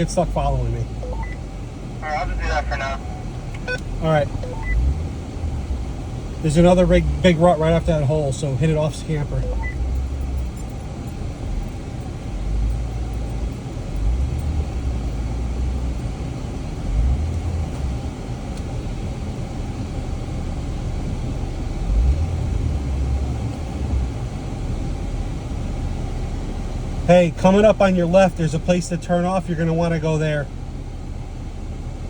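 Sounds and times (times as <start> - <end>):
off-road vehicle engine rumble: 0.0 - 32.0.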